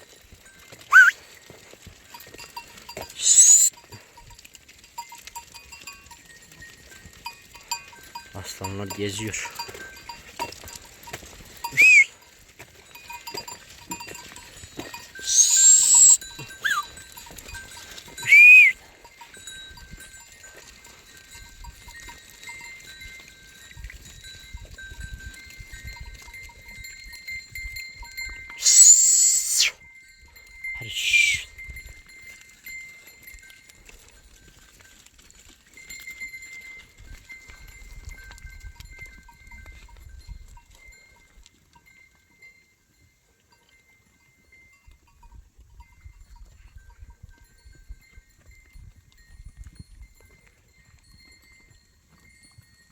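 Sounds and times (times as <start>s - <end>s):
sheep bells ringing: 0.0s - 52.9s
short shrill sounds: 0.9s - 1.2s, 3.1s - 3.7s, 11.7s - 12.1s, 15.2s - 16.9s, 18.2s - 18.8s, 28.6s - 29.8s, 30.8s - 31.6s.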